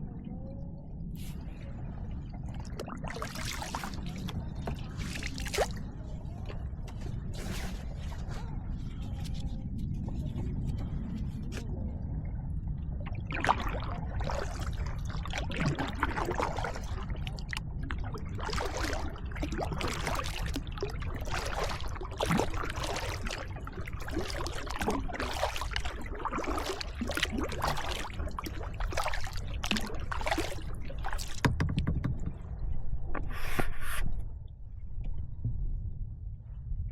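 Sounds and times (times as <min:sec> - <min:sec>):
steady low rumble: 0:00.0 - 0:31.4, 0:32.2 - 0:36.9
kayak paddle splashing in water: 0:02.6 - 0:05.9, 0:13.0 - 0:32.3.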